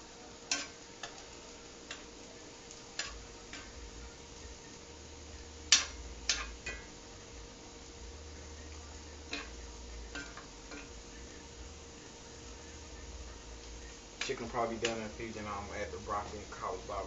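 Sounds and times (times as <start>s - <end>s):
faint steady hum: 0.0s - 17.0s
utensils clinking on cookware: 0.5s - 2.1s, 5.7s - 6.9s, 9.3s - 11.0s.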